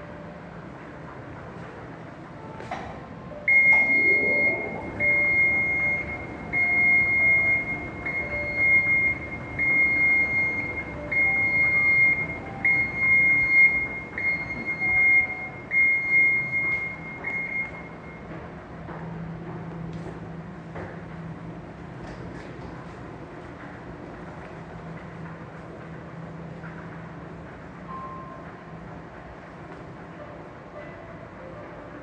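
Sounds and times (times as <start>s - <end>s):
escalator warning beep: 3.3s - 18.4s, 27.9s - 28.5s.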